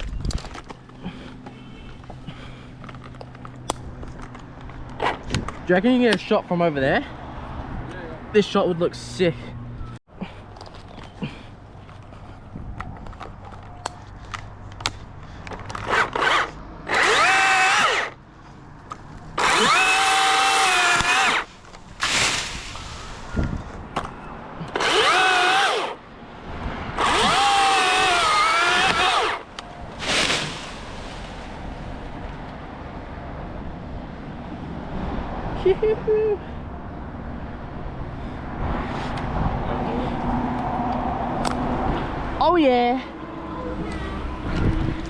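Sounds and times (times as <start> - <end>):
cordless chainsaw cutting wood: 15.9 - 18.2, 19.4 - 22.3, 24.8 - 26.0, 27.0 - 29.5.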